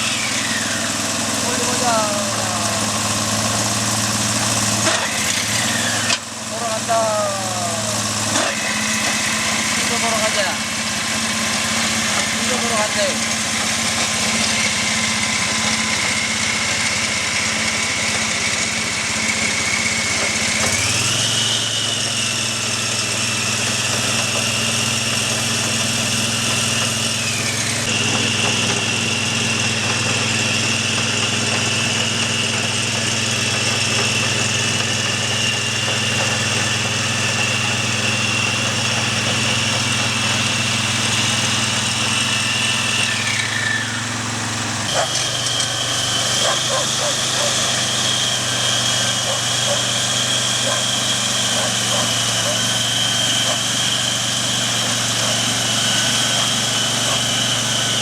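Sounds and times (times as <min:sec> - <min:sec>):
walking tractor engine running: 0:00.0 - 0:58.0.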